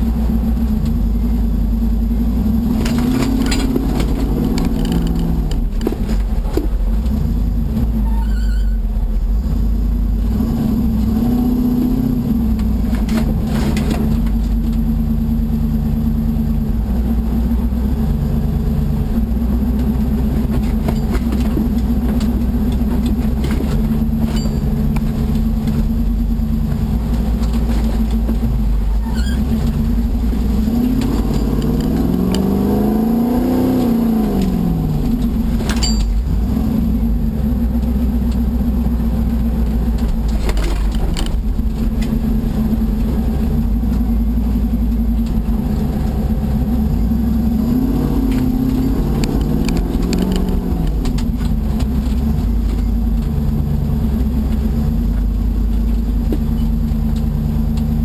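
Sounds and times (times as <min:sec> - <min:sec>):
engine revving under load: 0:00.0 - 0:05.9, 0:09.4 - 0:58.0
sharp knocks through vehicle: 0:02.7 - 0:07.1.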